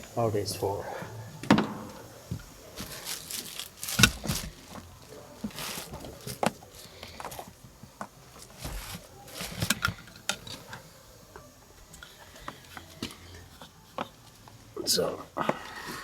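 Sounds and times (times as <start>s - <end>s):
equipment clicking and tapping: 1.4s - 10.8s.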